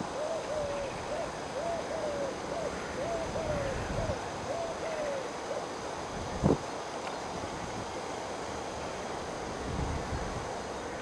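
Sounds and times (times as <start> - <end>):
bird hooting: 0.0 - 5.7.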